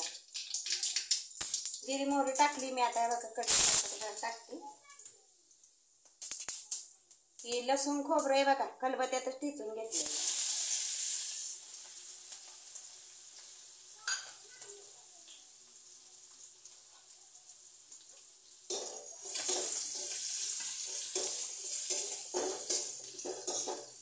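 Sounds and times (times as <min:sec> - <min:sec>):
spices sizzling in a wok: 0:00.0 - 0:24.0
spatula scraping a pan: 0:18.7 - 0:24.0.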